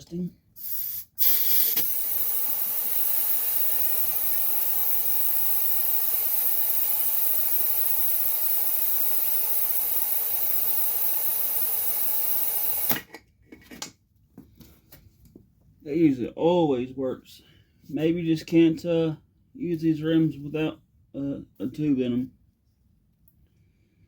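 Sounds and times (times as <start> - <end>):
compressed air hissing into tire: 0.6 - 8.3.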